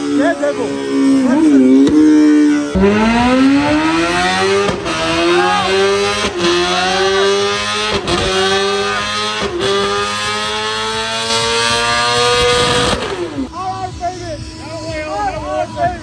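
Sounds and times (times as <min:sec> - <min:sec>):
motorcycle engine at full throttle: 0:00.0 - 0:16.0.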